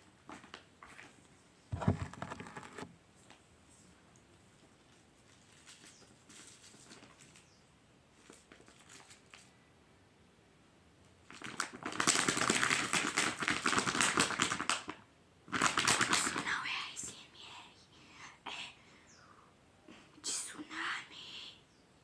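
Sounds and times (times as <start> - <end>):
crinkling and crackling handling: 1.8 - 9.5.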